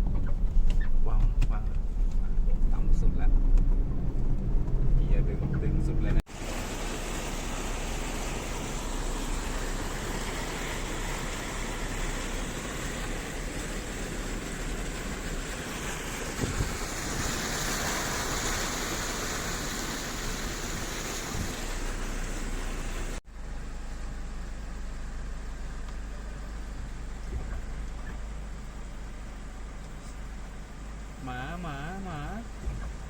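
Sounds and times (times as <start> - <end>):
floodwater rushing: 6.3 - 23.2.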